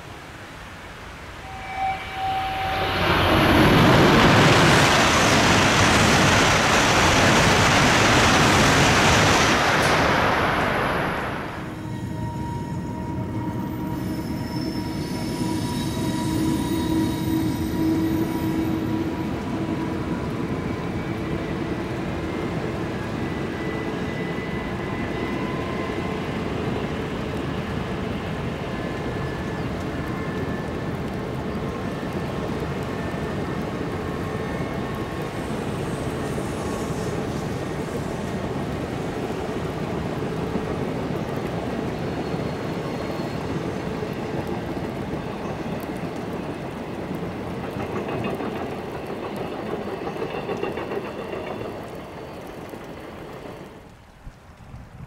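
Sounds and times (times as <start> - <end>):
train running rumble: 1.4 - 55.0
faint whining tones: 11.6 - 26.8.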